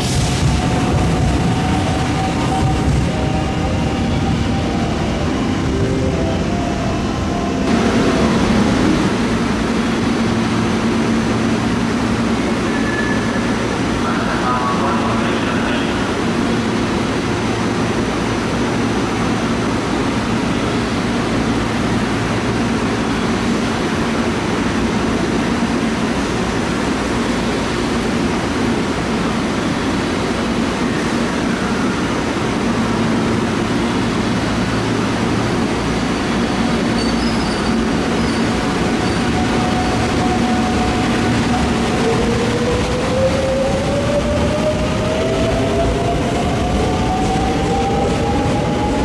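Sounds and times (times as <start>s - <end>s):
train electric hum: 0.0s - 49.0s
faint high squeals: 12.6s - 13.5s, 37.0s - 39.3s.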